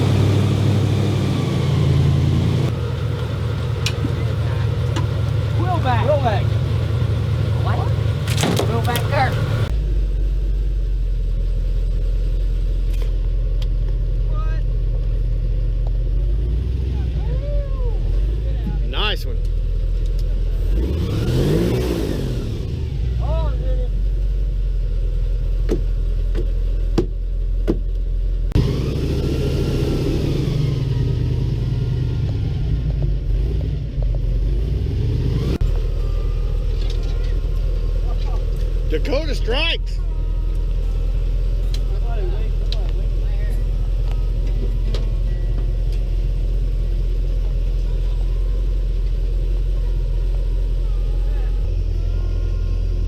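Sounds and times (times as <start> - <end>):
airboat engine droning: 0.0 - 9.7.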